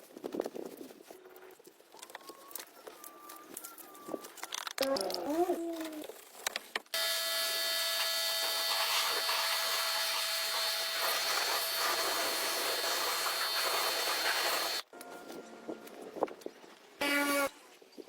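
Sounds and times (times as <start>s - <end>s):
machine hissing and whining: 7.0s - 14.9s.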